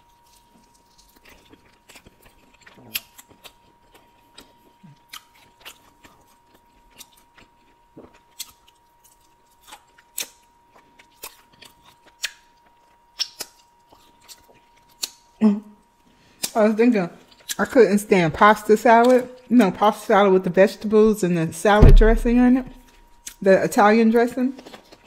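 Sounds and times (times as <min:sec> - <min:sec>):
chewing chicken wing: 0:00.0 - 0:16.6, 0:17.2 - 0:20.1, 0:24.5 - 0:25.0
wet mouth clicks and smacks: 0:13.2 - 0:13.7.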